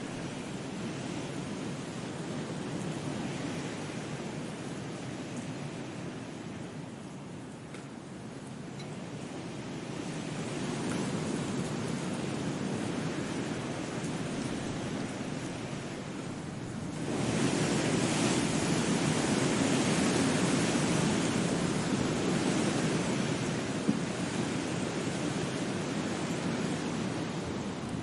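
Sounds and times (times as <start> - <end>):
steady rushing noise: 9.2 - 28.0.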